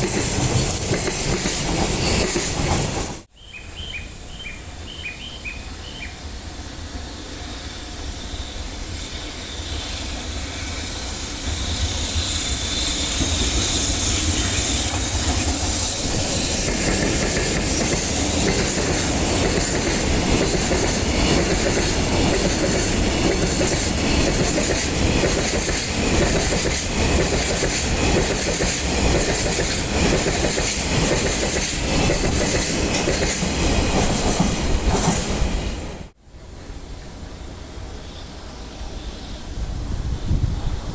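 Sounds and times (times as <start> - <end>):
freight train wheels clacking: 0.0 - 3.3, 9.1 - 35.9.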